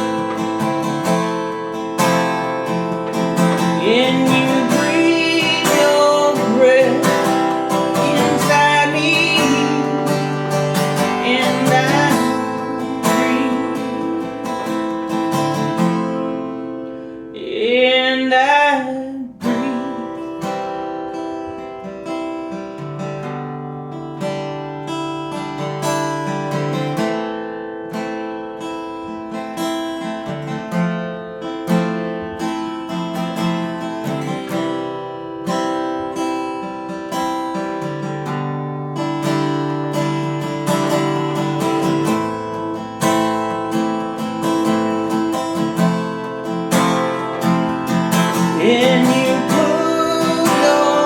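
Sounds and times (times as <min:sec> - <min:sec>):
acoustic guitar strumming: 0:00.0 - 0:51.0
person singing: 0:03.3 - 0:16.1, 0:17.3 - 0:20.6, 0:44.4 - 0:51.0.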